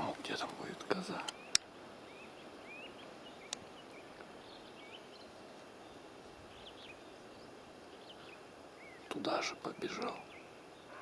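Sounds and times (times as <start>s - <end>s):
outdoor background hiss: 0.0s - 11.0s
small birds chirping: 0.0s - 11.0s
small click: 1.2s - 1.7s.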